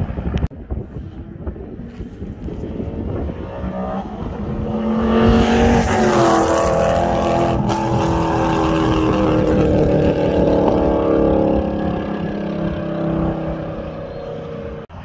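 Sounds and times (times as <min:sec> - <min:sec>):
car engine accelerating past: 0:03.2 - 0:14.9.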